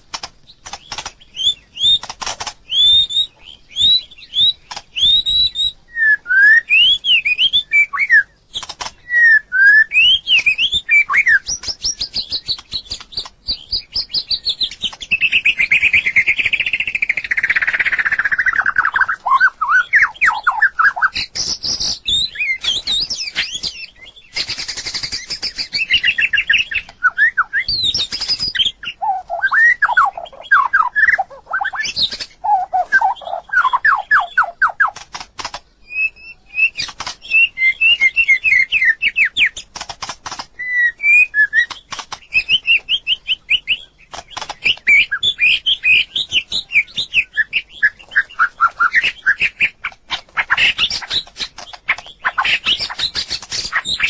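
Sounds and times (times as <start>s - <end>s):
sharp clicks: 0.0s - 3.0s, 4.6s - 5.2s, 8.5s - 9.1s, 11.4s - 19.1s, 33.7s - 36.0s, 36.6s - 54.0s
bird singing whistled song: 0.7s - 35.0s, 35.8s - 39.7s, 40.6s - 54.0s.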